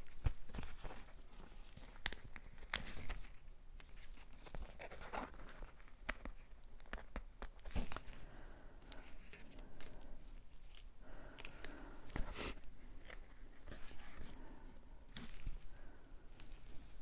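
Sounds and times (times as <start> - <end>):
rustling tearing sound: 0.0 - 8.2, 8.8 - 17.0.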